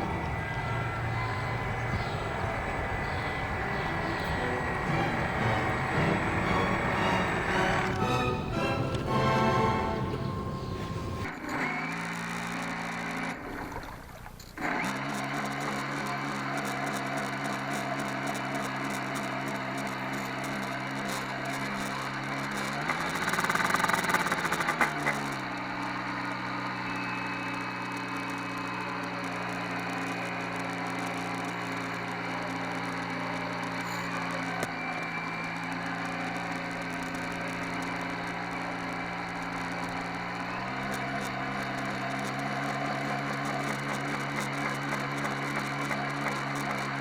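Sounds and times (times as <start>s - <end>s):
model boat motor humming: 0.0s - 47.0s.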